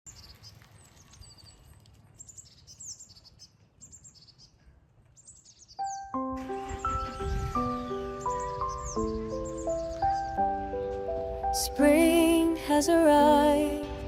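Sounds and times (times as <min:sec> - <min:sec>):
songbirds chirping and trilling: 0:00.1 - 0:11.8
music with held notes: 0:05.8 - 0:14.0.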